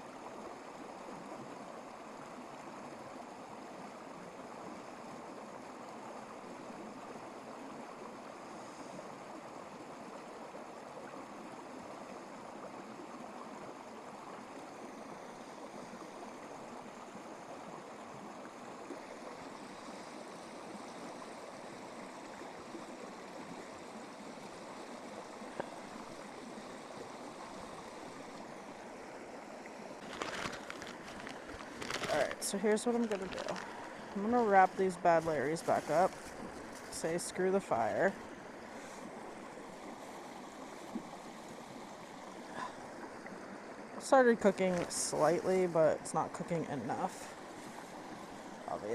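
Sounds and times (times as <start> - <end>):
flowing water rushing: 0.0 - 48.9.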